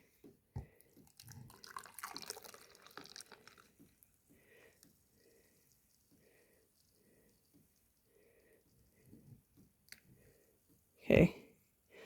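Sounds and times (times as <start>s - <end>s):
milk pouring into mug: 0.6s - 9.0s.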